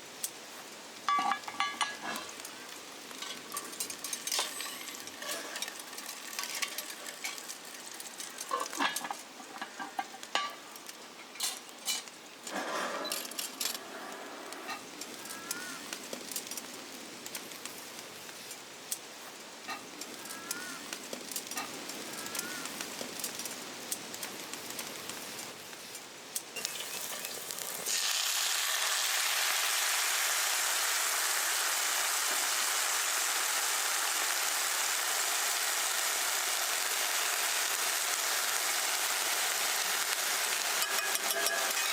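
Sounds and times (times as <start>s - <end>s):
food sizzling in a pan: 0.0s - 41.9s
utensil scraping pan: 40.8s - 41.9s.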